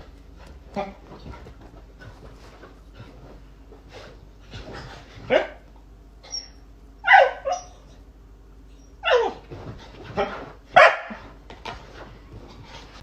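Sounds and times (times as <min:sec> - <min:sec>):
dog barking: 0:05.3 - 0:05.6, 0:07.0 - 0:07.7, 0:10.8 - 0:11.2.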